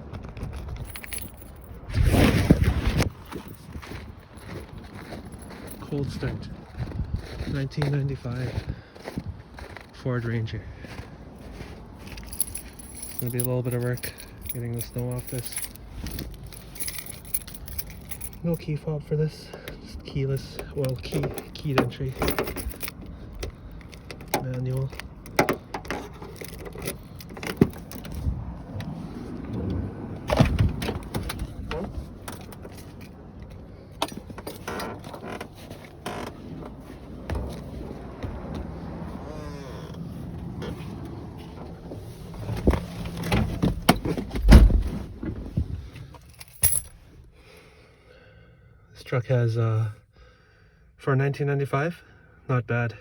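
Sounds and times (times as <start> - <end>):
keys jingling: 0.1 - 2.4, 3.0 - 6.4, 11.5 - 18.8, 19.4 - 47.1
clicks and knocks of handling: 20.6 - 28.2.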